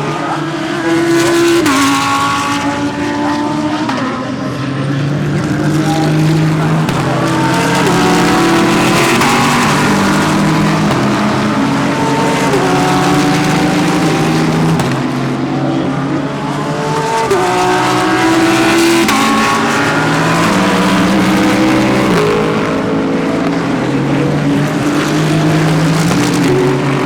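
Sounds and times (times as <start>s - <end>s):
race cars accelerating with upshifts: 0.0s - 27.0s.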